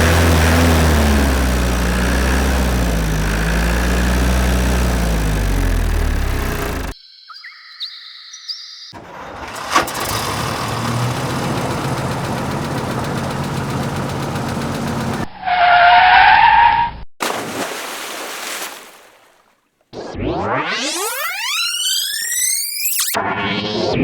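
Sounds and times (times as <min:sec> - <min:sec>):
engine rumble: 0:00.0 - 0:07.0, 0:09.0 - 0:15.3
rising synthesized sweep: 0:20.0 - 0:24.0.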